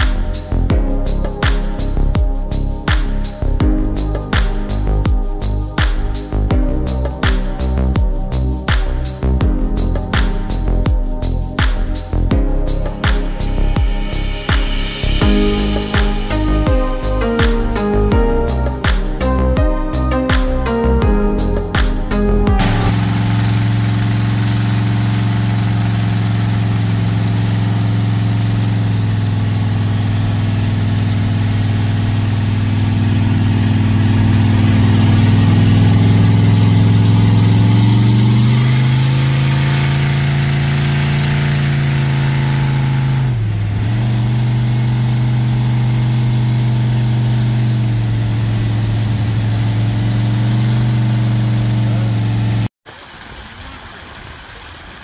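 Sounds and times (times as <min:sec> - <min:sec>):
car engine revving: 0:22.1 - 0:52.7.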